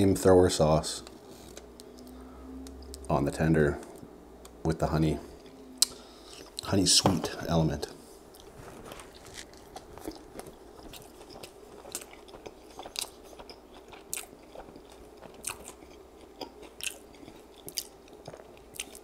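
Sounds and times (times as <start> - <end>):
faint steady hum: 0.0 - 19.0
chewing food: 8.3 - 19.0.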